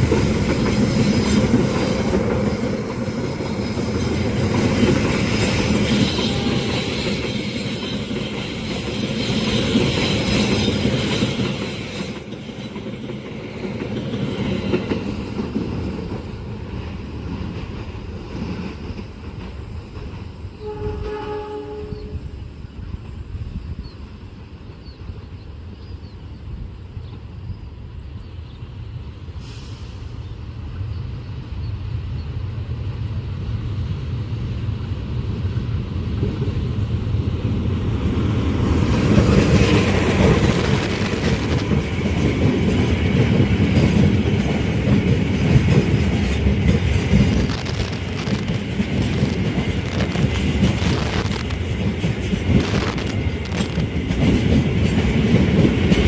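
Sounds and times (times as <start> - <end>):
train passing at speed: 0.0 - 56.0
wheels rushing over rails: 33.3 - 56.0.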